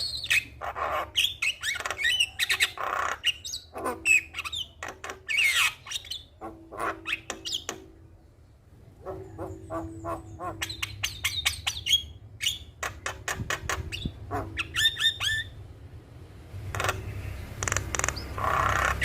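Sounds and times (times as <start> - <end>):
myna squawking and whistling: 13.8 - 15.5.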